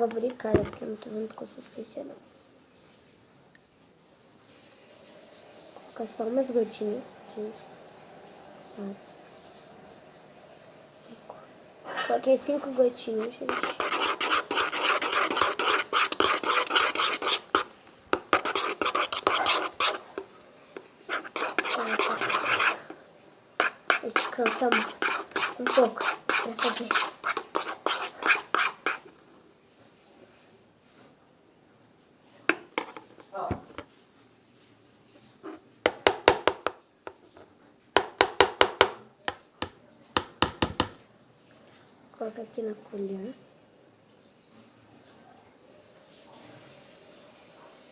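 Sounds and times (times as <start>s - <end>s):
slime being stirred: 12.0s - 23.0s, 23.6s - 29.2s, 32.5s - 33.9s.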